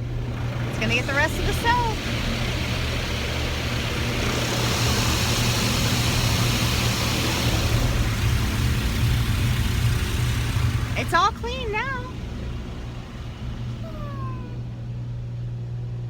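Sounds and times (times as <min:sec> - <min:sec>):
constant low hum: 0:07.4 - 0:16.0.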